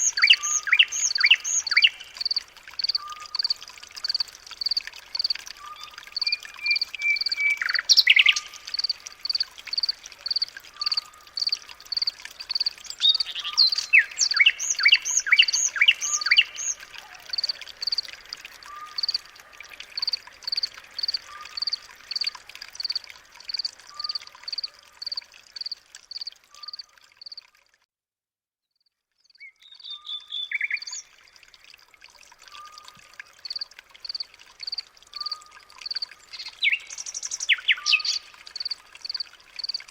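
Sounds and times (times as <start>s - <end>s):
bird chirping: 0.0s - 18.0s, 29.3s - 31.1s, 33.4s - 39.8s
bird singing: 0.0s - 18.0s, 29.3s - 31.2s, 32.5s - 38.7s.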